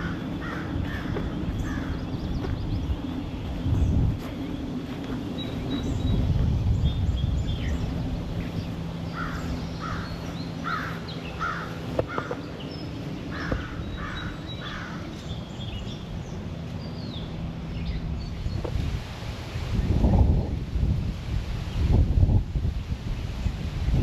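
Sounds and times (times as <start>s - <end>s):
crow cawing: 0.0s - 2.1s, 9.1s - 12.4s, 13.3s - 15.1s
small birds chirping: 0.0s - 20.1s
wind rumble on microphone: 0.0s - 24.0s.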